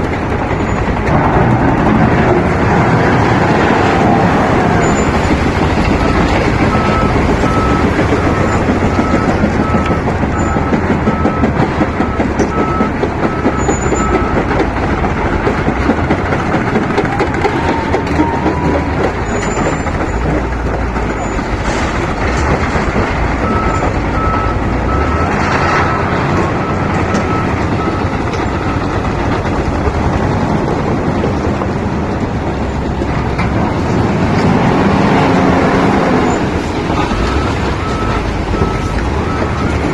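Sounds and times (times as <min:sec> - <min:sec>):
diesel engine running: 0:00.0 - 0:39.9
reversing alarm beeping: 0:04.6 - 0:14.6, 0:23.4 - 0:29.1, 0:37.0 - 0:39.9.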